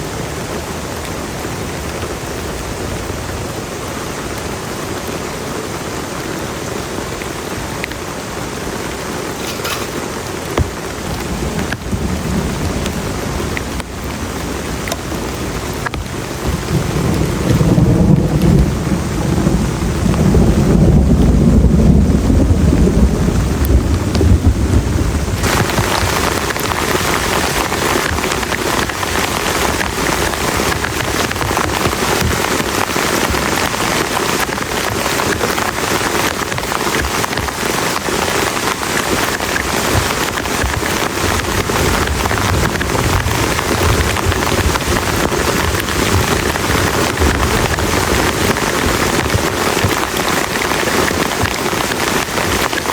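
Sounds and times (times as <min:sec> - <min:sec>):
heavy rain: 0:00.0 - 0:52.9
low rumble of thunder: 0:16.1 - 0:26.7.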